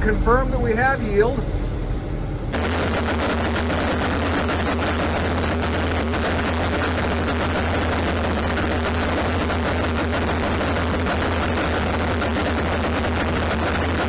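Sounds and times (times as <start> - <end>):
combine harvester running: 0.0 - 4.4.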